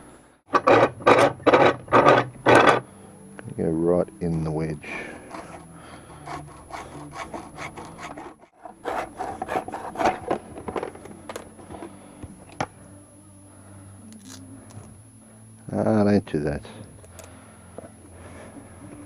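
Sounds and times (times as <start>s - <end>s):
hand saw cutting strokes: 5.2s - 10.4s.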